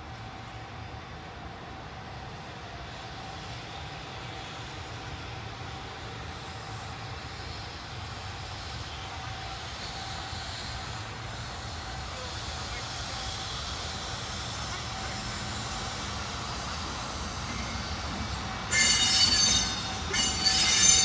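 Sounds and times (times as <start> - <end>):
train rumbling: 0.1 - 21.0.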